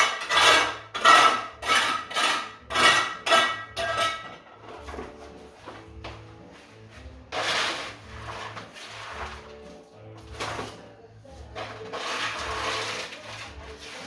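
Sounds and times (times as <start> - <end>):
soft background music: 0.0 - 14.0
debris scraping strokes: 6.5 - 14.0.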